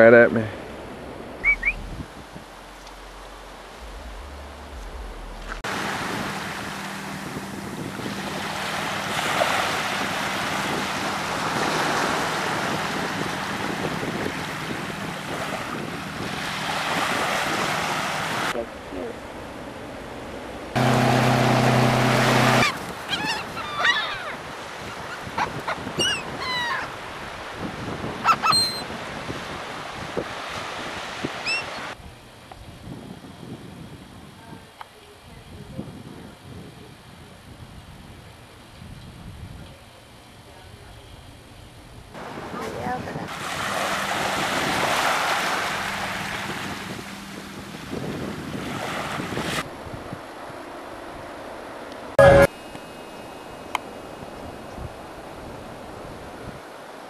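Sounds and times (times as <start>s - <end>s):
sea waves: 0.0s - 32.0s, 42.2s - 57.0s
loud steady hum with hiss: 0.1s - 17.6s, 18.4s - 23.1s, 31.9s - 48.6s, 49.6s - 57.0s
gulls calling: 0.6s - 5.6s, 20.8s - 27.0s, 28.2s - 28.9s, 31.4s - 32.0s
wind buffeting microphone: 0.6s - 18.6s, 22.4s - 39.8s, 42.1s - 50.5s.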